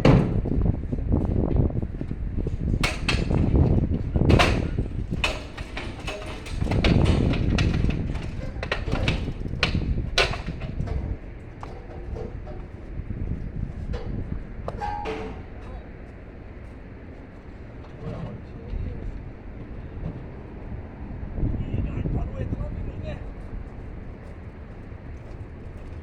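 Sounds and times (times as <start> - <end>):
sharp knocks and clanks: 0.0 - 0.7, 2.0 - 18.5
steady low rumble: 0.0 - 26.0.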